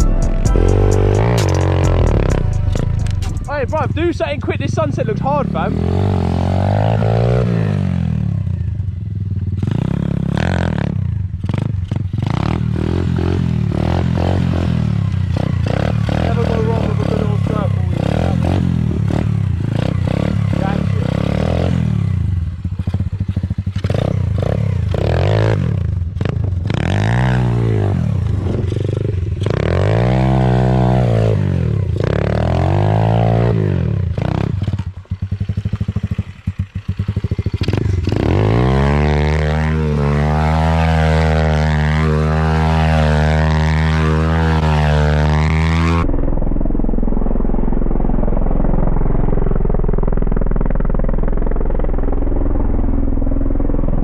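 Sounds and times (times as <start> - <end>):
pit bike engines revving: 0.0 - 46.1
muffled engine rumble: 46.0 - 54.0.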